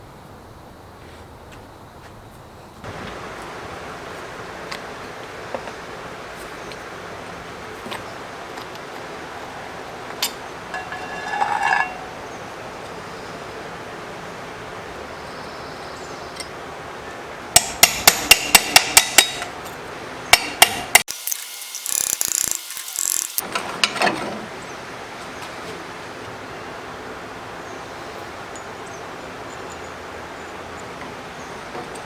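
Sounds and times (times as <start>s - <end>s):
hammer strikes: 17.6s - 19.5s, 20.3s - 23.4s.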